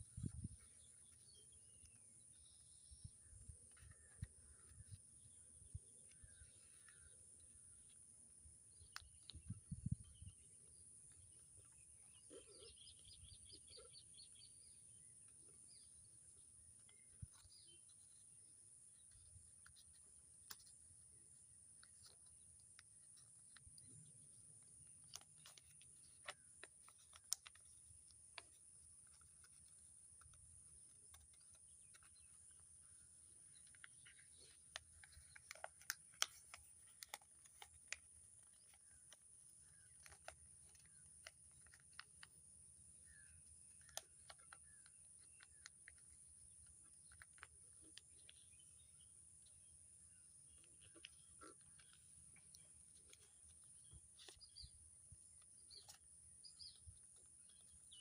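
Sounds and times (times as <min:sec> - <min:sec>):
paper being folded and creased: 0:00.0 - 0:08.0, 0:15.2 - 0:48.9, 0:50.4 - 0:58.0.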